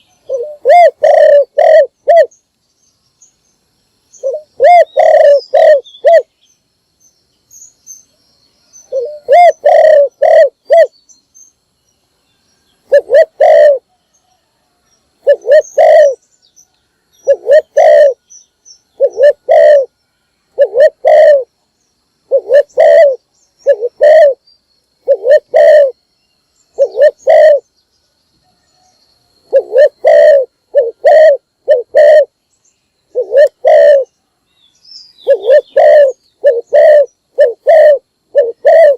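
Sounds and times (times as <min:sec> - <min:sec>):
dove cooing: 0:00.0 - 0:02.3, 0:04.2 - 0:06.3, 0:08.9 - 0:10.9, 0:12.8 - 0:14.0, 0:15.2 - 0:16.2, 0:17.2 - 0:18.2, 0:19.0 - 0:19.9, 0:20.6 - 0:21.5, 0:22.3 - 0:24.4, 0:25.0 - 0:26.0, 0:26.7 - 0:27.7, 0:29.4 - 0:32.4, 0:33.1 - 0:34.1, 0:35.2 - 0:38.9.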